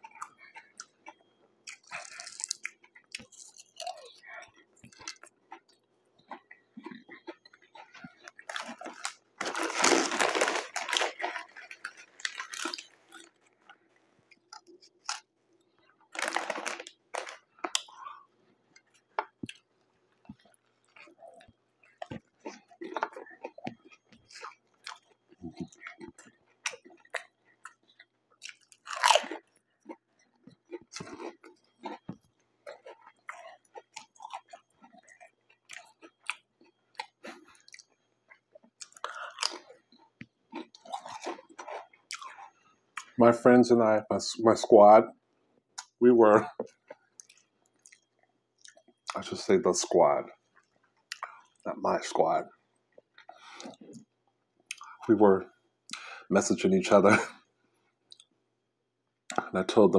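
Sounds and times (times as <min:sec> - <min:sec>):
potato chips crunching: 0:00.0 - 0:13.8, 0:16.0 - 0:19.7, 0:20.3 - 0:32.1, 0:32.7 - 0:43.2
chewing with mouth clicks: 0:00.0 - 0:43.2, 0:45.8 - 0:49.3, 0:50.3 - 0:54.1, 0:54.7 - 0:55.1, 0:57.2 - 0:58.3.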